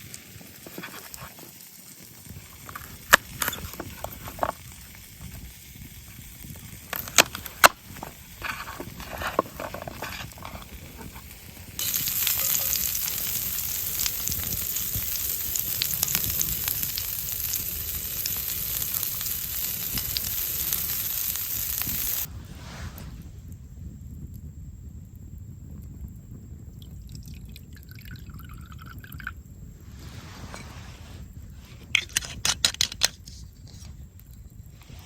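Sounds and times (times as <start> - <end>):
meat sizzling over fire: 0.0 - 27.9.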